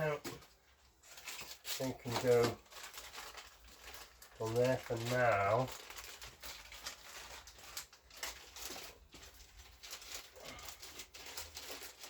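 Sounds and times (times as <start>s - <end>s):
packaging rustling: 0.0s - 12.0s.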